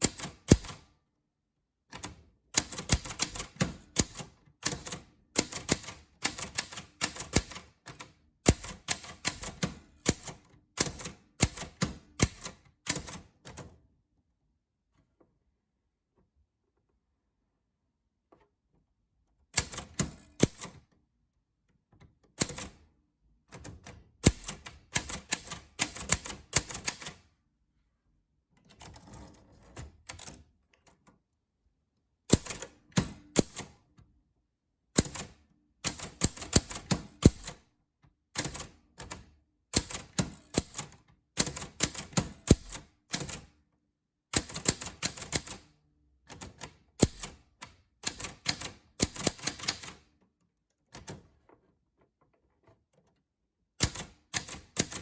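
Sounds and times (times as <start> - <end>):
typewriter keys clicking: 0.0 - 0.8, 1.9 - 13.6, 19.6 - 20.8, 23.7 - 27.2, 32.3 - 33.7, 35.0 - 37.6, 38.4 - 43.5, 44.3 - 45.6, 46.3 - 50.1, 53.8 - 55.0.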